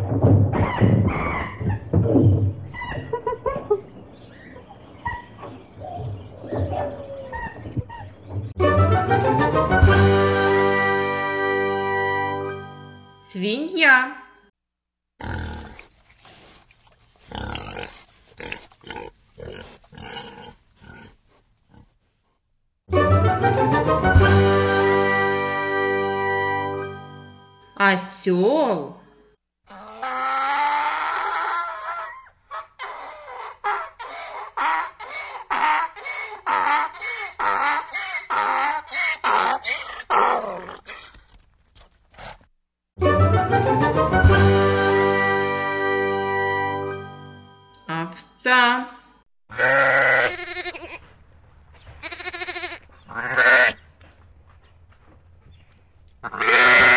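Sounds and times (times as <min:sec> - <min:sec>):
chiming jingle: 0:12.1 - 0:13.4, 0:24.7 - 0:28.1, 0:44.7 - 0:48.1
pig grunting: 0:15.2 - 0:16.0, 0:17.2 - 0:22.0, 0:31.9 - 0:41.2
donkey braying: 0:29.7 - 0:41.2, 0:49.5 - 0:51.1, 0:52.0 - 0:53.8, 0:56.2 - 0:56.9.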